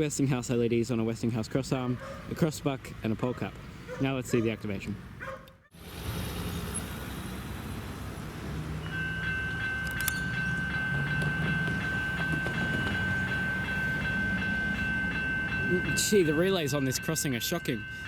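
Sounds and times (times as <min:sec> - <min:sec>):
level crossing bells ringing: 0:08.8 - 0:18.0.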